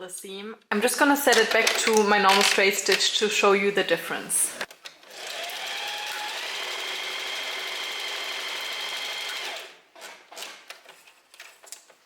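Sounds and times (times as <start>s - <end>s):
sewing machine running: 5.1s - 9.8s
faint handling sounds: 10.7s - 12.0s.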